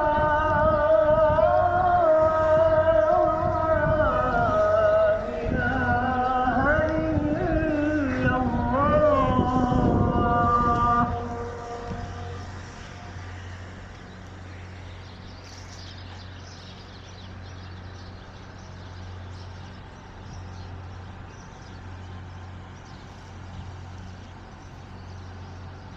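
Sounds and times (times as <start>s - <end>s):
steady low hum: 0.0s - 25.9s
traffic background wash: 0.0s - 25.9s.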